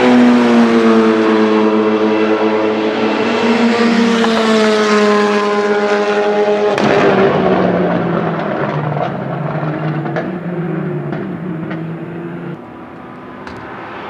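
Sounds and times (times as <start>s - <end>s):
rally car engine revving: 0.0s - 12.9s
short sharp cracks: 6.8s - 12.6s.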